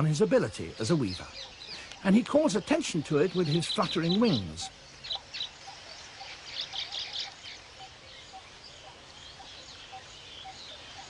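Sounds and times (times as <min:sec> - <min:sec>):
background hiss: 0:00.0 - 0:11.0
birds chirping: 0:00.0 - 0:11.0.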